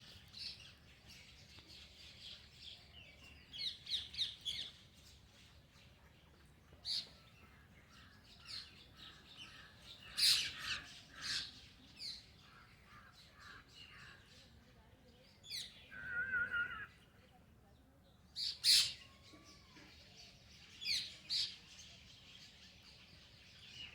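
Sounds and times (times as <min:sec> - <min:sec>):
birds chirping: 0:15.4 - 0:17.1.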